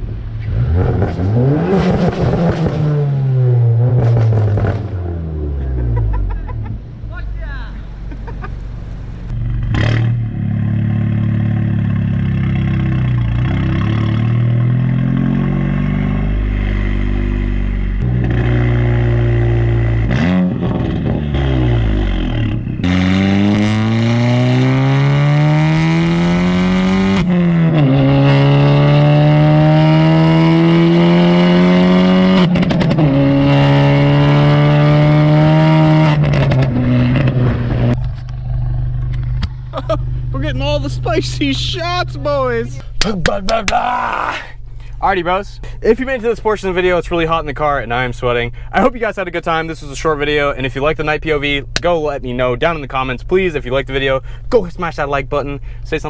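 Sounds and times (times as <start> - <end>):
car engine accelerating: 0.0 - 56.0
exhaust pops: 3.8 - 6.8, 32.3 - 34.2, 35.9 - 56.0.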